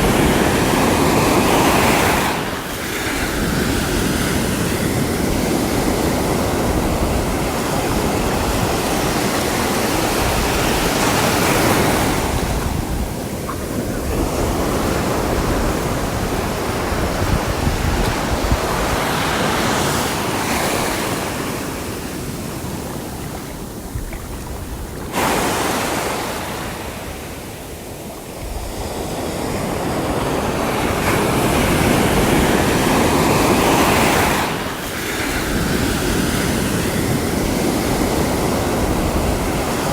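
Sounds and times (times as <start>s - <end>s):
sea waves washing onto shore: 0.0s - 39.9s.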